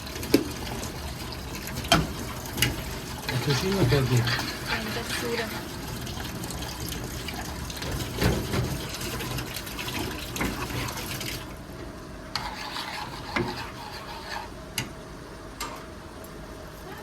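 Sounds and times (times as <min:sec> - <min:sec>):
water running and splashing: 0:00.0 - 0:11.6.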